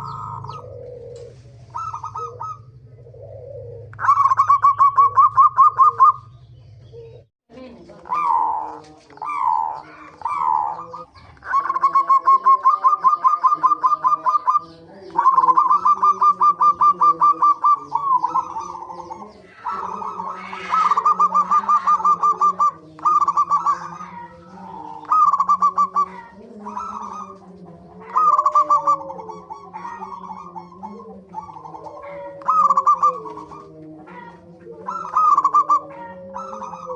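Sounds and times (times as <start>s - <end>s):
doves cooing: 0.0s - 36.9s.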